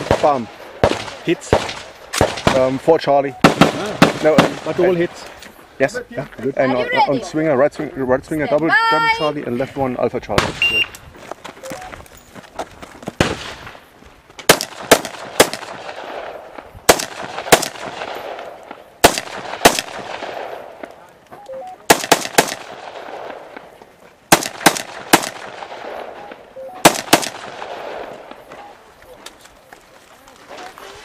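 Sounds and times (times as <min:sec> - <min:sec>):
rifle shots: 0:00.0 - 0:02.8, 0:03.4 - 0:05.0, 0:14.5 - 0:20.8, 0:21.8 - 0:28.5
rolling echo of gunshots: 0:00.0 - 0:05.0, 0:14.5 - 0:20.8, 0:21.8 - 0:28.5.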